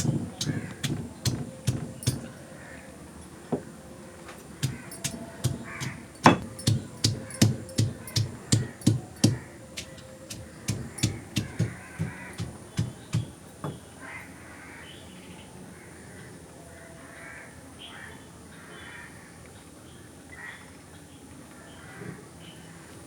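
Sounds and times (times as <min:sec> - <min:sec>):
sharp rapid knocks: 0:00.0 - 0:02.4, 0:04.6 - 0:13.4
crows cawing: 0:04.6 - 0:06.1, 0:11.7 - 0:12.4.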